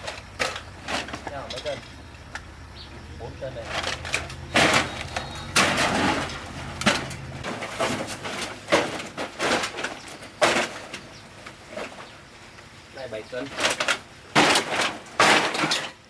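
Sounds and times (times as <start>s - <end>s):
scrap metal clattering: 0.0s - 2.5s, 3.5s - 12.2s, 13.3s - 16.0s.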